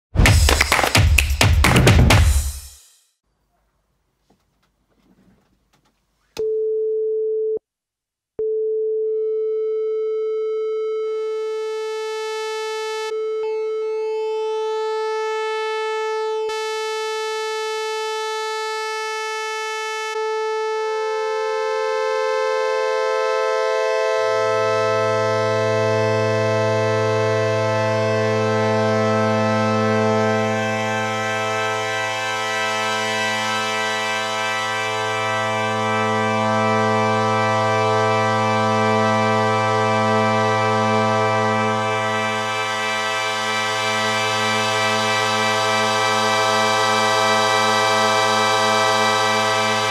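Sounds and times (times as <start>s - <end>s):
synthesizer chord: 11.3s - 49.9s
synthesizer sustained tone: 11.7s - 49.9s.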